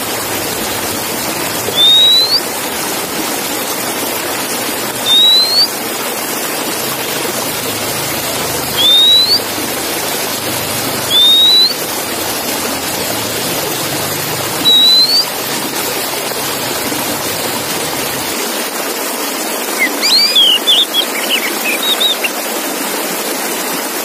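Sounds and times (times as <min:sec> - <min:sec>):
bird short rising whistles: 0:01.7 - 0:02.4, 0:05.0 - 0:05.7, 0:08.8 - 0:09.4, 0:11.1 - 0:11.8, 0:14.6 - 0:15.3, 0:19.8 - 0:22.3.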